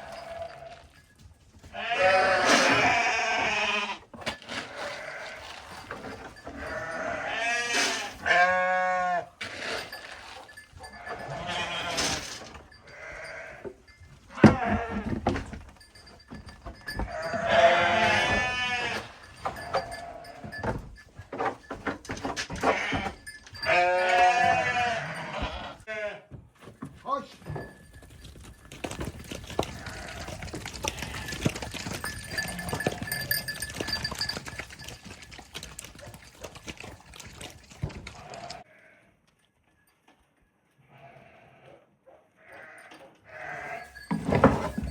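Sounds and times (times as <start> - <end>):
sheep hooves clattering: 0.0 - 38.7, 43.0 - 44.9
sheep bleating: 1.7 - 4.0, 4.7 - 5.7, 6.5 - 9.4, 10.8 - 12.2, 12.8 - 13.6, 17.1 - 20.6, 22.6 - 26.3, 29.7 - 31.4, 42.4 - 44.0.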